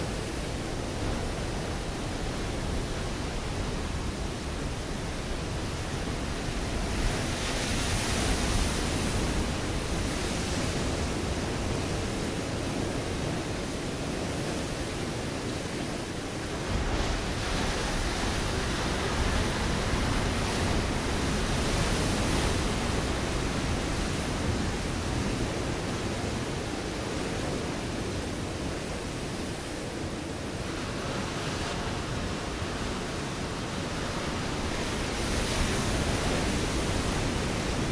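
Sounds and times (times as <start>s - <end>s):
waves breaking on rocky shore: 0.0s - 37.9s.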